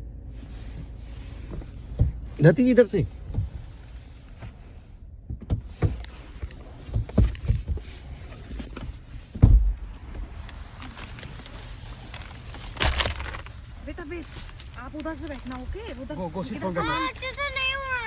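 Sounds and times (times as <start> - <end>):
steady low rumble: 0.0 - 18.0
thumps and knocks: 1.5 - 2.3, 5.2 - 10.2.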